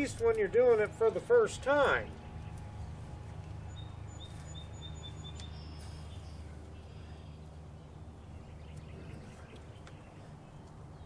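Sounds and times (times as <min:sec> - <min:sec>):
steady low hum: 0:00.0 - 0:11.0
bird chirping: 0:01.8 - 0:11.0.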